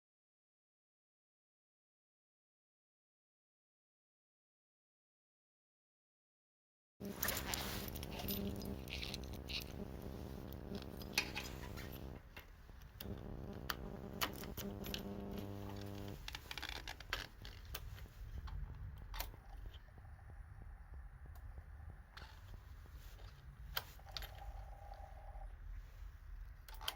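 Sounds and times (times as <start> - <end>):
small electric motor humming: 7.0 - 12.2, 13.0 - 16.2.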